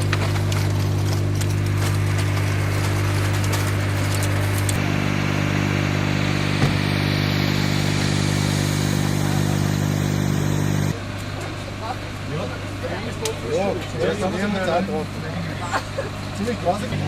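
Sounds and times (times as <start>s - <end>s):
motor engine humming: 0.0s - 11.7s.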